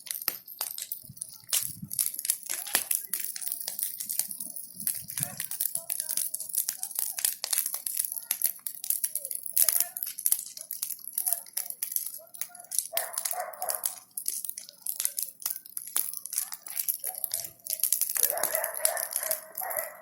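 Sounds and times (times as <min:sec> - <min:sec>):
bonfire crackling and popping: 0:00.0 - 0:20.0
dog barking: 0:12.9 - 0:14.0, 0:16.4 - 0:17.5, 0:18.2 - 0:20.0.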